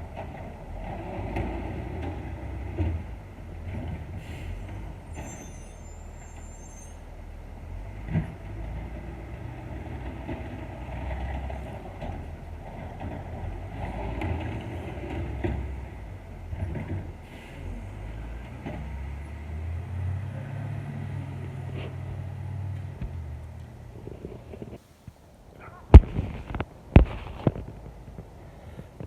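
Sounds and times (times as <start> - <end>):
diesel truck engine rumbling: 0.0 - 29.0
high-pitched squeal: 4.5 - 7.1.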